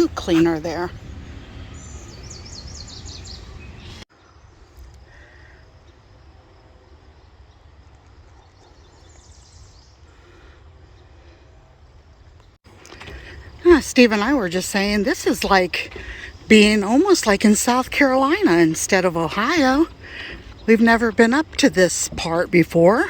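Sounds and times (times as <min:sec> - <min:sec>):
bird chirps: 0:00.0 - 0:04.8.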